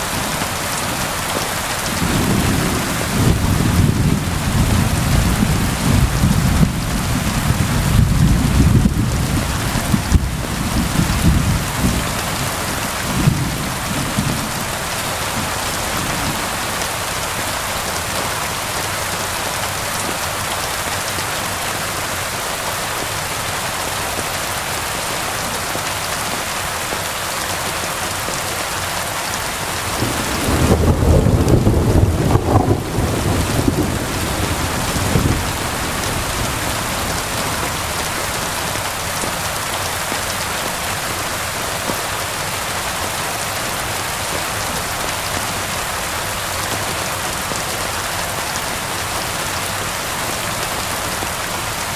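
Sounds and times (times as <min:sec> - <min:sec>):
heavy rain falling: 0:00.0 - 0:51.9
rolling thunder: 0:02.0 - 0:12.1, 0:30.0 - 0:38.4.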